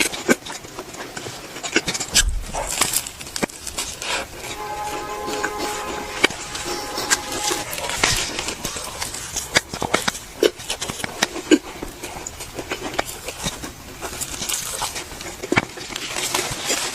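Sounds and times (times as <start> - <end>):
chewing: 10.5 - 16.9.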